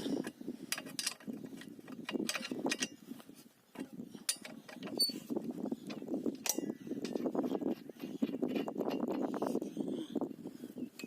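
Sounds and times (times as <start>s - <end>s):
metal clicks and knocks: 0.2s - 3.0s, 3.7s - 5.1s, 5.8s - 9.3s.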